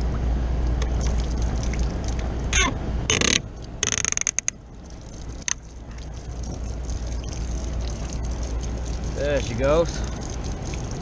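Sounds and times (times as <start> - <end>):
ratchet-like mechanical clicks: 3.1 - 4.5.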